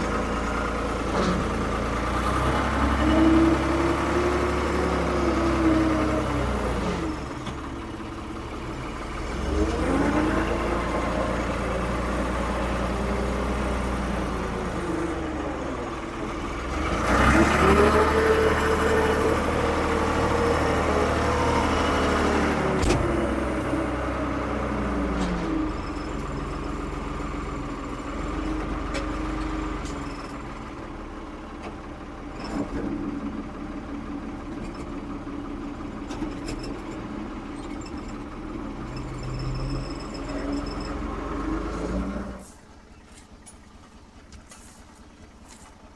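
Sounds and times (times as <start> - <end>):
diesel engine revving: 0.0 - 30.7.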